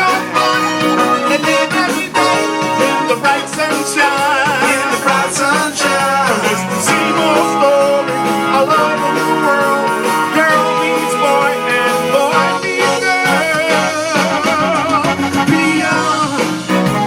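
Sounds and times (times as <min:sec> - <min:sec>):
person singing: 0:00.0 - 0:17.0
soul band playing: 0:00.0 - 0:17.0.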